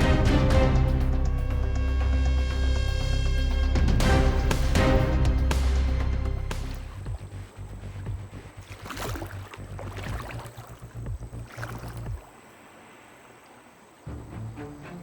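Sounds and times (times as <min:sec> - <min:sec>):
water sloshing and splashing: 0:04.6 - 0:15.0.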